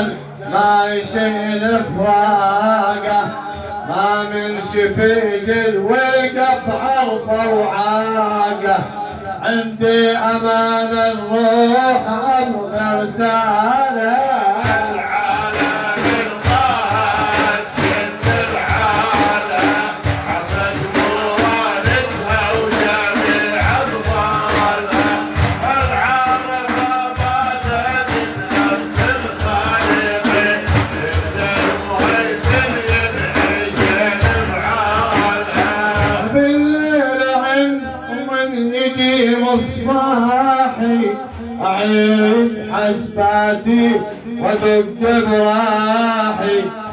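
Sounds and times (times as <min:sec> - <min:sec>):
steady drum beat: 0:12.0 - 0:38.1
person singing: 0:14.2 - 0:45.6.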